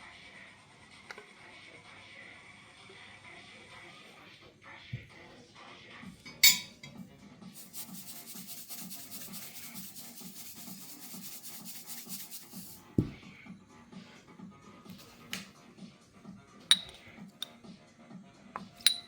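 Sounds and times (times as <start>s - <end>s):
soft background music with beat: 6.0s - 19.0s
food rasping on a metal grater: 7.6s - 12.8s.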